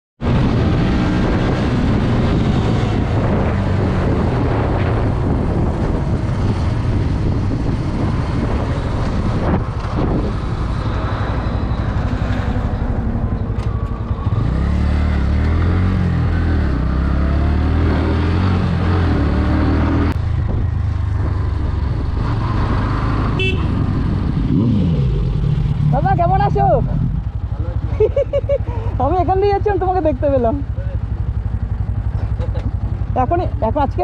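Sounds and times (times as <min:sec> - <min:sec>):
wind and road noise: 0:00.2 - 0:34.0
motorcycle engine running: 0:18.5 - 0:34.0.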